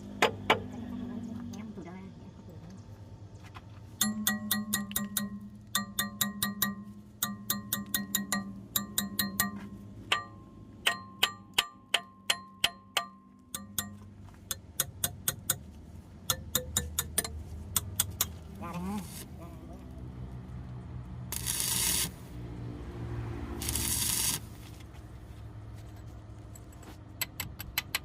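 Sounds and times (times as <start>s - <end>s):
hammer striking steel: 4.0s - 15.7s, 16.3s - 18.4s.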